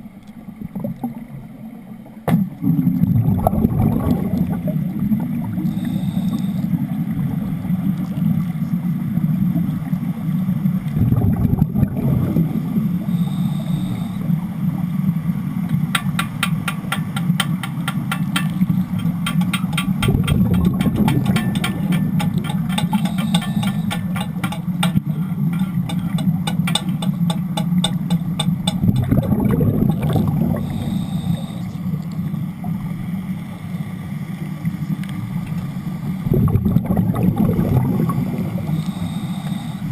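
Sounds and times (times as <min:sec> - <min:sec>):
underwater bubbles rumbling: 0:00.0 - 0:33.4, 0:34.3 - 0:39.0
fast crackle of clicks: 0:16.0 - 0:29.2.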